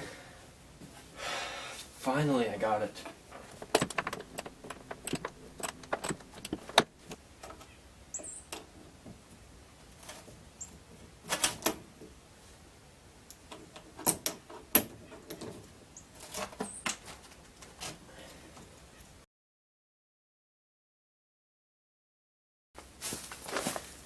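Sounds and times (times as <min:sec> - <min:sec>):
car parts clattering: 0:03.0 - 0:07.6
metallic clicks of hand tools: 0:03.4 - 0:07.6.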